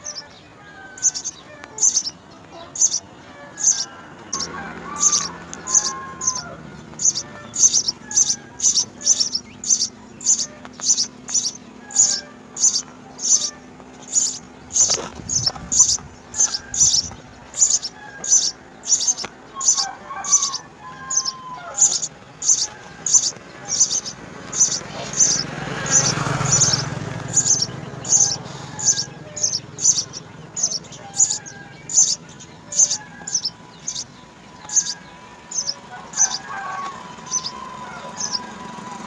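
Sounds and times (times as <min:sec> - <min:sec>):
sparrows chirping: 0:00.0 - 0:39.0.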